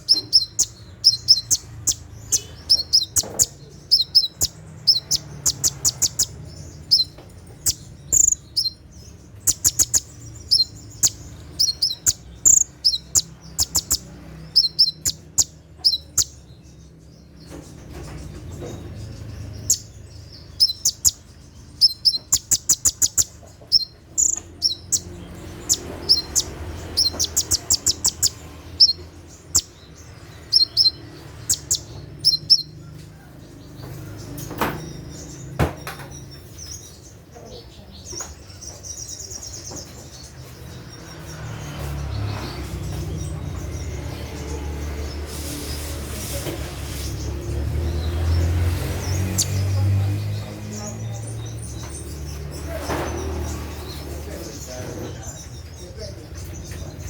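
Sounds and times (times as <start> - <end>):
bird singing high chips and trills: 0.0 - 57.0.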